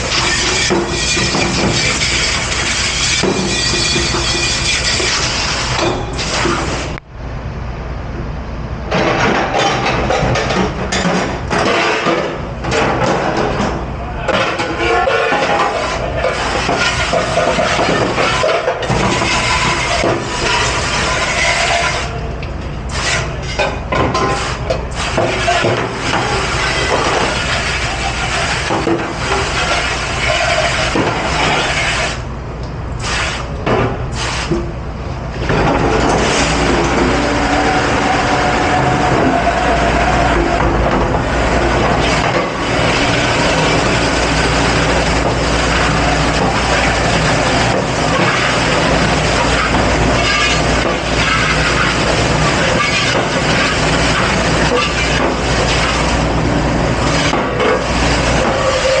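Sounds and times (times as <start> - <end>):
low machine hum: 0.0 - 59.0
dishes and utensils clattering: 9.0 - 22.0.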